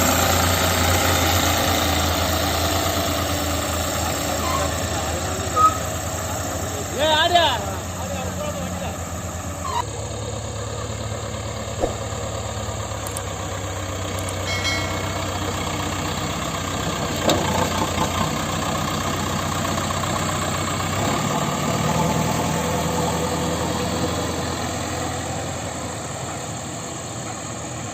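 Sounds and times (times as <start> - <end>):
large diesel engine running: 0.0 - 27.9
short knocks: 11.8 - 12.1.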